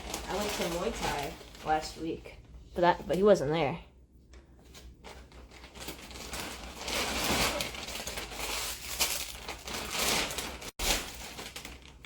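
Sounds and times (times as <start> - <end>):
plastic bag crinkling: 0.0 - 2.2, 5.0 - 12.0.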